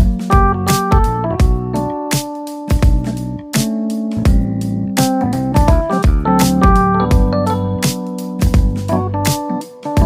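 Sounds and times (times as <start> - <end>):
bass line: 0.0 - 2.0, 2.7 - 9.6
keyboard chords: 0.0 - 10.0
drum hits: 5.6 - 9.0.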